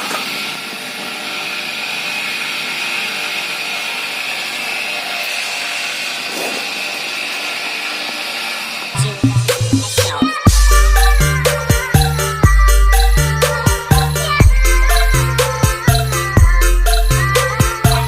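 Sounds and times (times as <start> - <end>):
polishing machine whining: 0.0 - 9.2.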